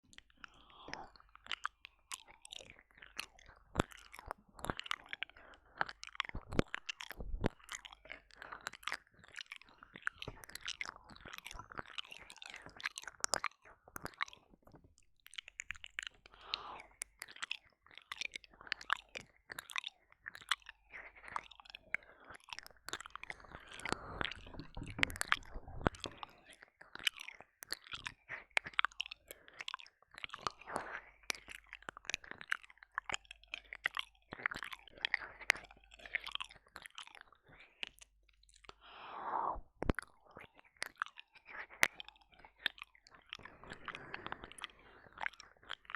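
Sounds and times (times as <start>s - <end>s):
wet mouth licks and smacks: 0.1s - 38.8s, 39.8s - 45.9s.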